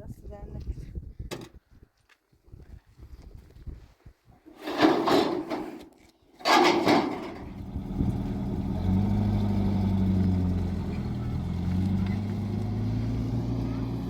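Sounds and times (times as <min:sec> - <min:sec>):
vehicle engine running: 0:07.2 - 0:14.0.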